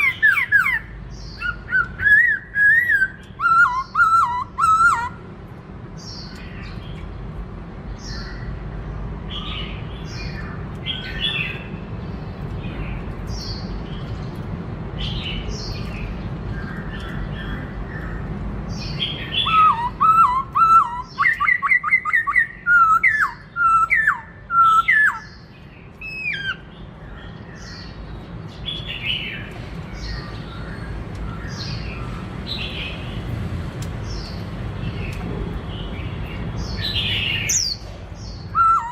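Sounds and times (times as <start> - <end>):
bird calling and whistling: 0.0 - 5.2, 18.9 - 26.7, 36.8 - 38.9.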